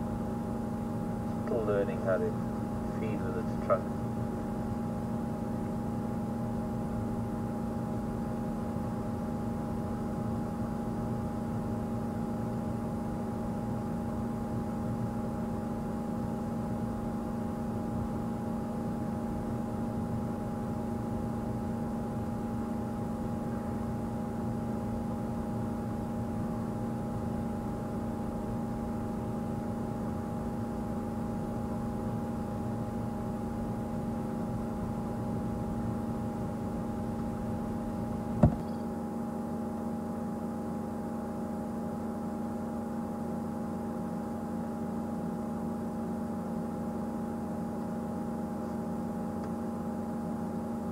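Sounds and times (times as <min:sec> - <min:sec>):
steady mechanical hum: 0:00.0 - 0:50.9.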